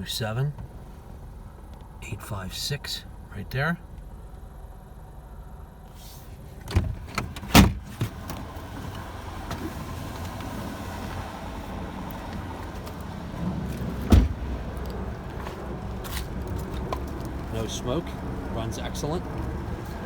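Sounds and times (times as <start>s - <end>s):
car engine idling: 0.0s - 20.0s
sharp thumps: 13.4s - 14.7s.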